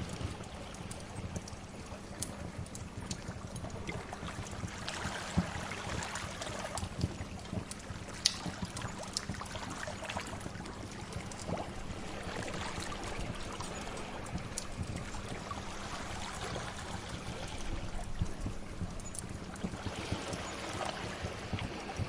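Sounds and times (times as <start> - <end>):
wood fire crackling and popping: 0.0 - 22.0
sea waves: 9.5 - 19.1.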